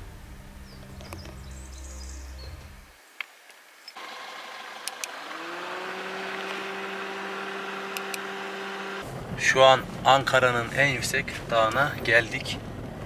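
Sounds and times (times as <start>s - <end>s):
car engine humming: 3.9s - 13.0s.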